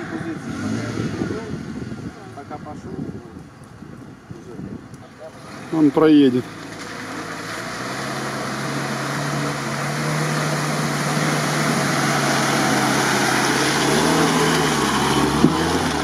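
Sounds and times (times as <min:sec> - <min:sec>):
vehicle wading through water: 0:05.3 - 0:16.0.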